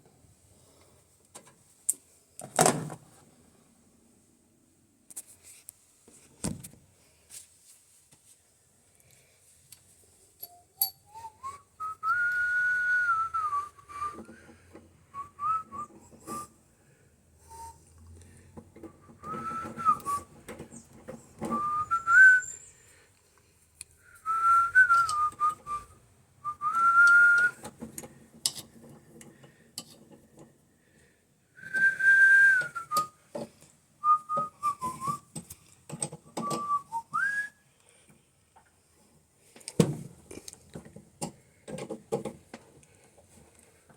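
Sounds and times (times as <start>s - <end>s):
person whistling a tune: 10.5s - 14.4s, 15.1s - 16.5s, 17.5s - 17.9s, 19.0s - 20.3s, 21.5s - 22.7s, 24.0s - 27.6s, 31.6s - 33.2s, 34.0s - 35.3s, 36.4s - 37.6s.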